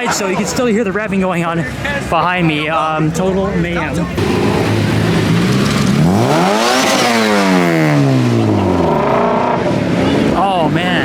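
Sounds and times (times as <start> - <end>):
street and crowd noise: 0.0 - 11.0
car engine revving: 3.2 - 11.0.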